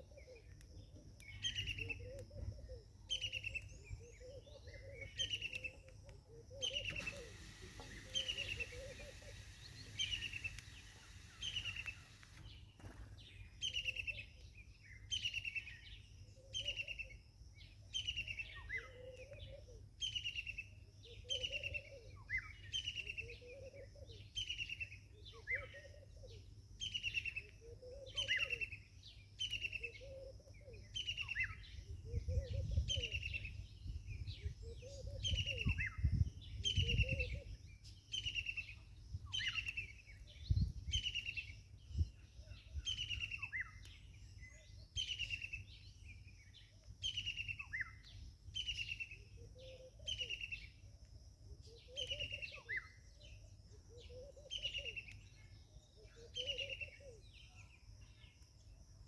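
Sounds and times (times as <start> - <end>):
low bird call: 0.0 - 12.7, 18.0 - 50.8, 51.6 - 58.2
bird high downward-sliding call: 6.6 - 12.4.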